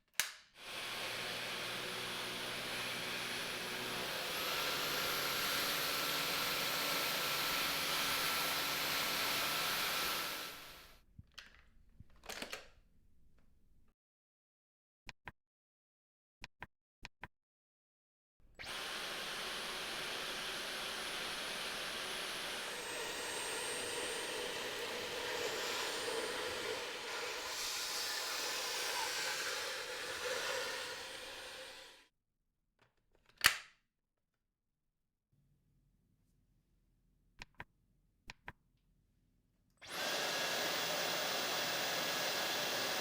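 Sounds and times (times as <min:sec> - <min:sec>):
cordless vacuum running: 0:00.6 - 0:10.9, 0:18.6 - 0:32.0, 0:39.8 - 0:43.0.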